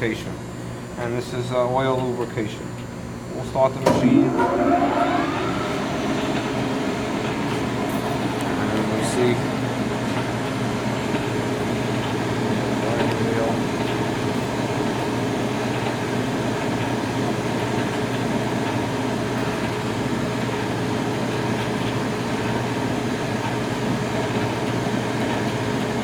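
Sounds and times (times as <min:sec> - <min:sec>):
grinder motor humming: 0:03.9 - 0:11.4.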